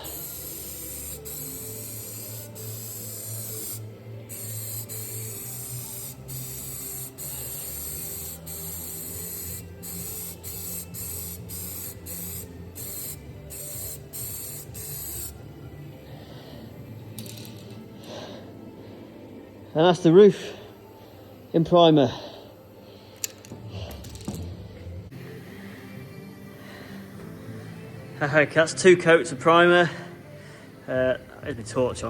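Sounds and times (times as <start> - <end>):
aerosol can spraying: 0.0 - 15.4.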